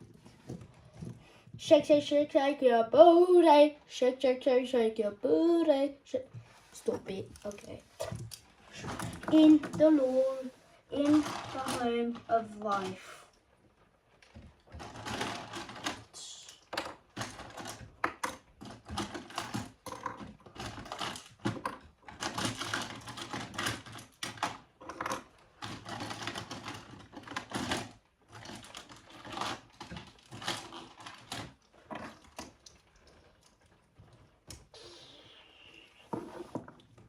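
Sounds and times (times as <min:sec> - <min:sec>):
plastic toy bricks clicking and rattling: 0:14.8 - 0:32.8.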